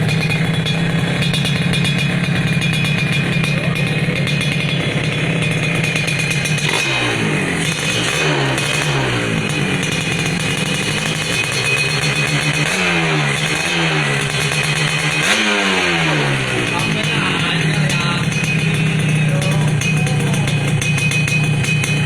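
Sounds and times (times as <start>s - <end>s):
two-stroke motorcycle engine revving: 0.0s - 22.0s.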